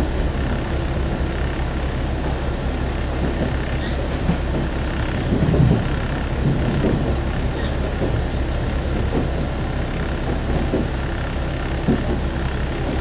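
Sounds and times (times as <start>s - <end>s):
railcar engine drone: 0.0s - 13.0s.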